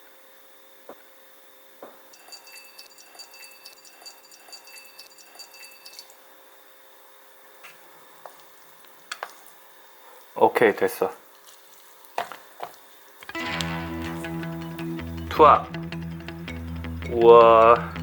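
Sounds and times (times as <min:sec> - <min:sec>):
water simmering faintly: 0:07.6 - 0:13.7
small pops and drips: 0:07.7 - 0:09.6, 0:11.3 - 0:13.4.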